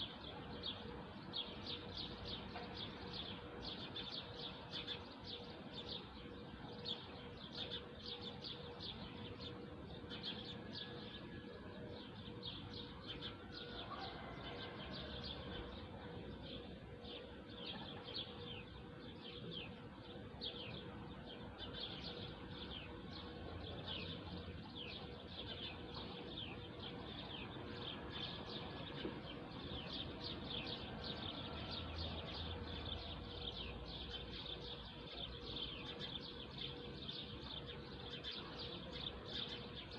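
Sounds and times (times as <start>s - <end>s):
faint steady hum: 0.0s - 39.9s
small birds chirping: 11.9s - 39.9s.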